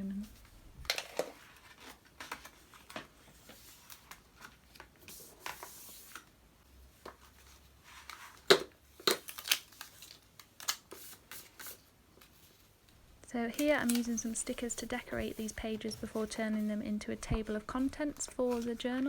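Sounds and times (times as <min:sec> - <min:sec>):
paper handling: 0:00.9 - 0:06.3, 0:13.3 - 0:19.0.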